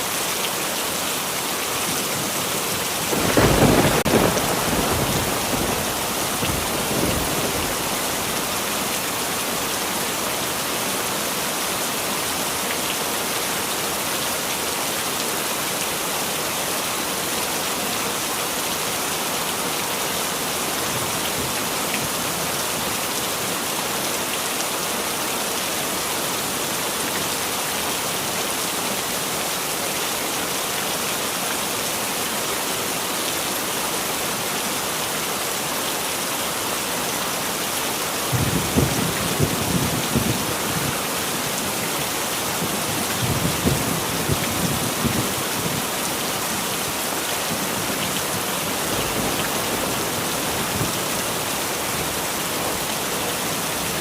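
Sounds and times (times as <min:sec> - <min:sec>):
heavy rain falling: 0:00.0 - 0:54.0
thunder rumble: 0:03.1 - 0:08.3.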